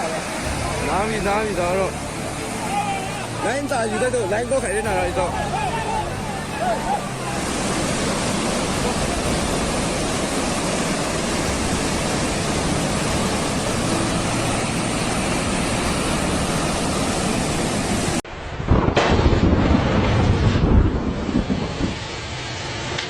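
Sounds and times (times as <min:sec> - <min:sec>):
rushing water: 0:00.0 - 0:23.0
wind buffeting a microphone: 0:04.8 - 0:22.6.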